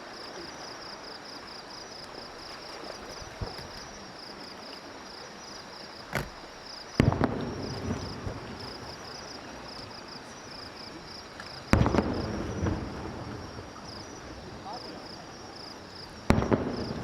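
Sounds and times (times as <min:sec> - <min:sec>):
insects chirping: 0:00.0 - 0:17.0
firework shells bursting: 0:06.1 - 0:08.4.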